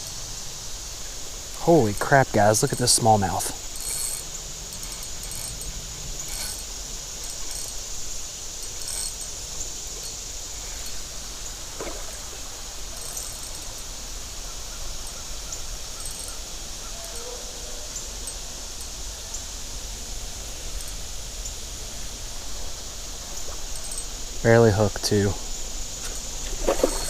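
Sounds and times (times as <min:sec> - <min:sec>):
flowing stream water: 0:07.2 - 0:14.4, 0:26.2 - 0:27.0.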